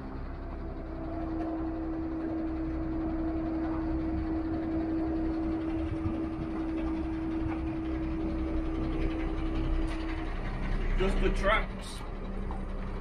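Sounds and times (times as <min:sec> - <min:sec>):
hydraulic pump whine: 0:00.0 - 0:13.0
truck engine running: 0:00.0 - 0:13.0.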